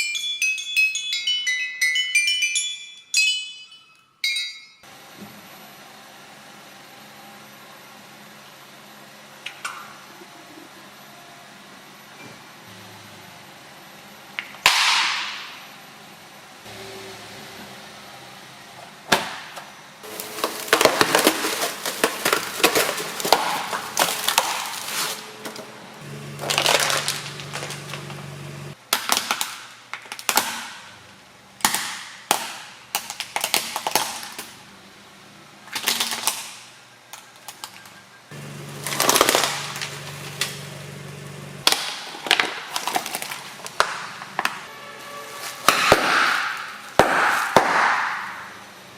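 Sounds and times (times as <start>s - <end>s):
objects crushed under car tyre: 19.2s - 25.7s, 26.4s - 28.2s, 38.8s - 40.7s, 41.6s - 44.6s.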